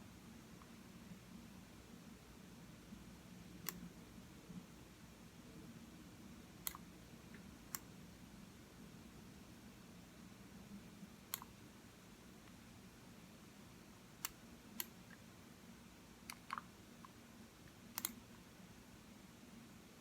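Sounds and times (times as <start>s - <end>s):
faint room hum: 0.0s - 20.0s
mouse buttons clicking: 6.6s - 6.8s, 18.0s - 18.2s.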